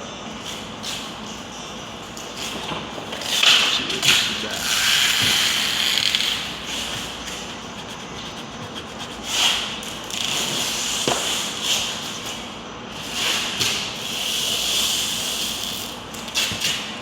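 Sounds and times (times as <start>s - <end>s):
soft rubbing strokes: 3.6s - 9.6s.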